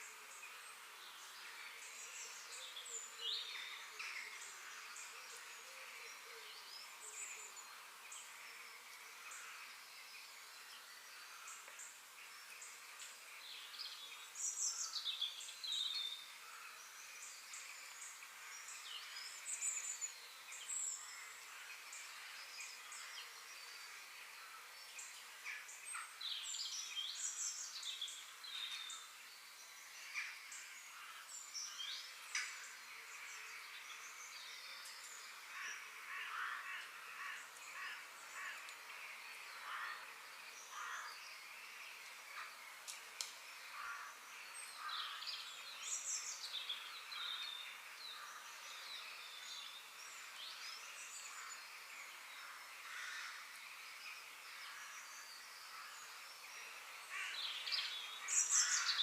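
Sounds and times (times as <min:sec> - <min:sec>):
faint outdoor background hum: 0:00.0 - 0:59.0
birds chirping and calling: 0:54.6 - 0:59.0.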